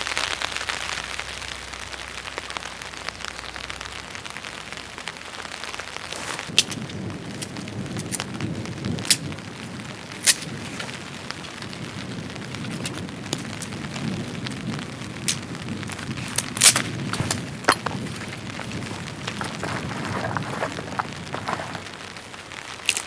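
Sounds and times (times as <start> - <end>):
steady rain: 0.0 - 23.0
sharp cracks and pops: 6.0 - 23.0.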